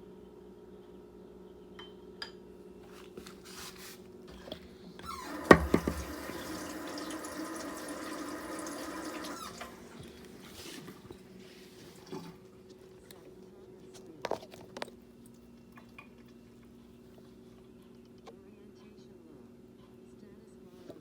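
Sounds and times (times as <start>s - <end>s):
kitchen tap running: 4.3s - 11.2s.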